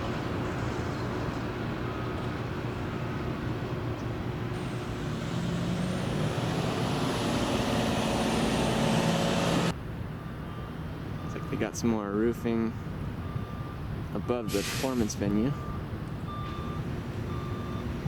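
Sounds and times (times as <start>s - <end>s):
road traffic: 0.0s - 11.3s, 12.7s - 18.0s
vehicle engine passing close: 4.6s - 9.8s.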